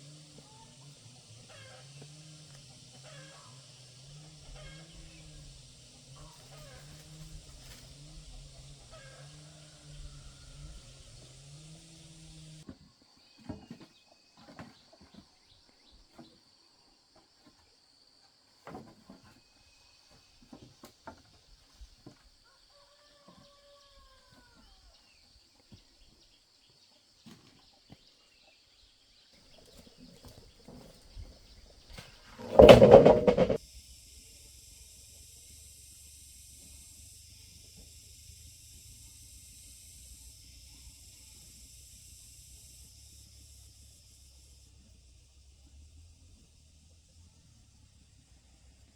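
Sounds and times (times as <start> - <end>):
faint knocks and clicks: 32.4 - 33.6
faint steady high hiss: 33.6 - 48.9.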